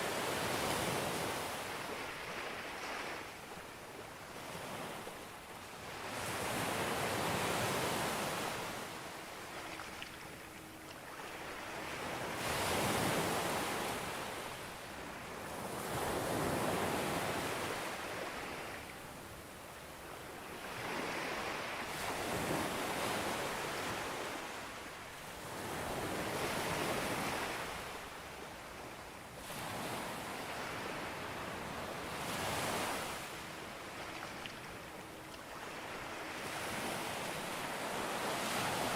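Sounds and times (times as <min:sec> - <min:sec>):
waves breaking on beach: 0:29.4 - 0:38.9.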